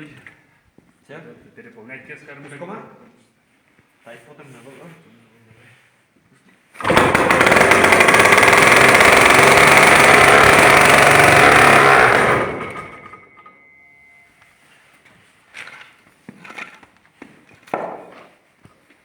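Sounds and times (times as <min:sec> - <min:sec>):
tractor engine starting and running: 0:06.8 - 0:13.6
faint high whine: 0:13.0 - 0:15.2.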